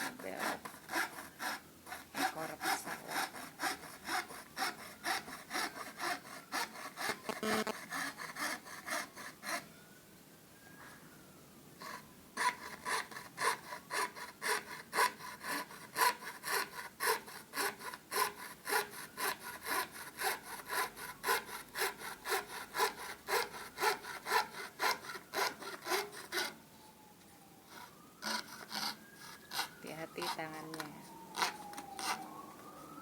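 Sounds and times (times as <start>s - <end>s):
hand saw cutting plywood: 0.0s - 9.6s, 11.8s - 26.6s, 27.7s - 32.4s.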